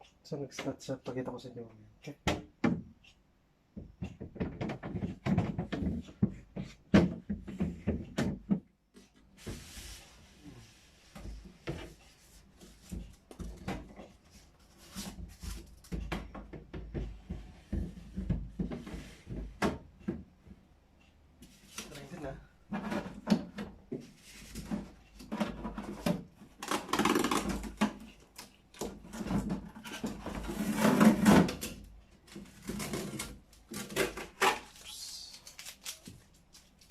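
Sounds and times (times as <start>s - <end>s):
knocks and clicks of handling fittings: 2.2s - 8.7s.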